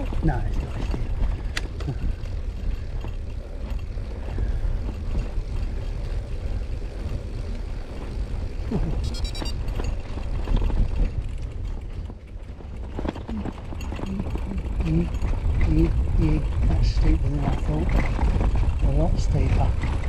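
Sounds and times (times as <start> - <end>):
bicycle rolling over path: 0.0 - 20.0
wind buffeting microphone: 0.0 - 20.0
high-pitched squeal: 8.9 - 9.8.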